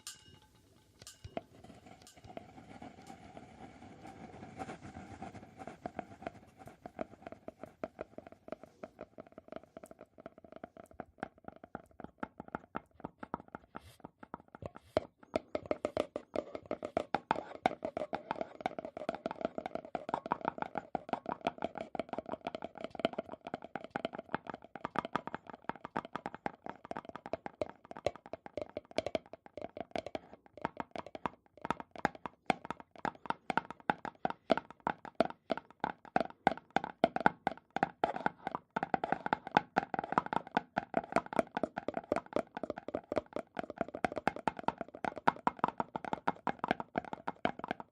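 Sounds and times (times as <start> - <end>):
fast tapping on ringing object: 0.0 - 3.2, 32.0 - 47.9.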